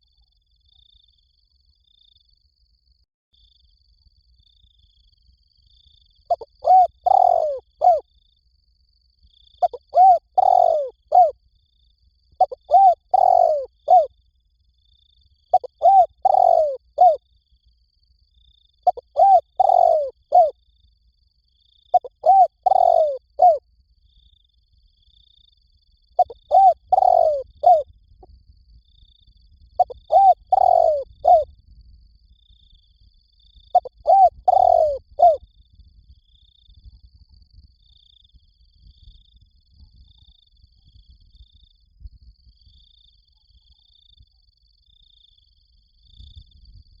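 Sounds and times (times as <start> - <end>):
dove cooing: 6.3 - 8.0, 9.6 - 11.3, 12.4 - 14.1, 15.5 - 17.2, 18.9 - 20.5, 21.9 - 23.6, 26.2 - 27.8, 29.8 - 31.4, 33.8 - 35.4.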